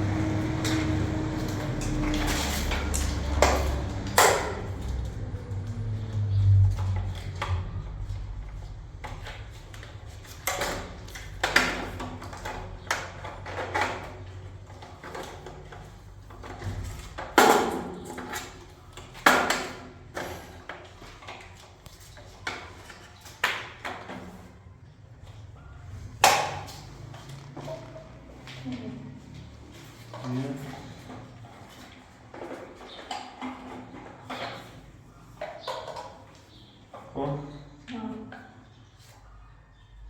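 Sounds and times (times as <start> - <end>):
low hum: 0.0 - 11.1.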